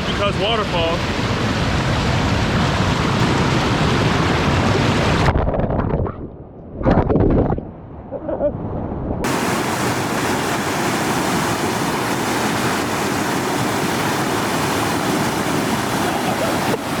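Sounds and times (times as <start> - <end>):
small waterfall rushing: 0.0 - 5.2, 9.2 - 17.0.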